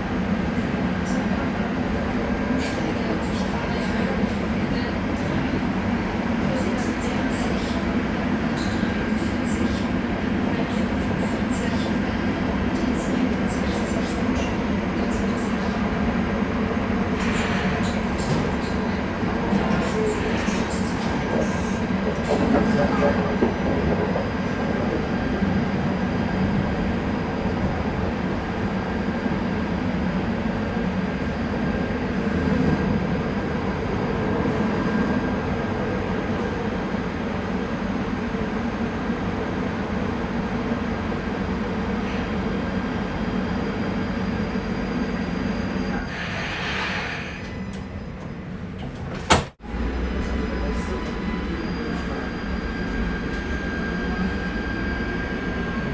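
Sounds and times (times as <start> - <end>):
light-rail car running on rails: 0.0 - 55.9
traction converter whine: 47.7 - 55.9.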